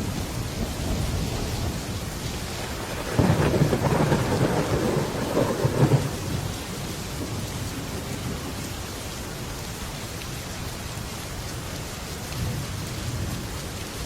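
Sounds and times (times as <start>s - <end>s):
thunder rumbling: 0.0s - 8.6s
heavy rain on a metal roof: 0.0s - 14.0s.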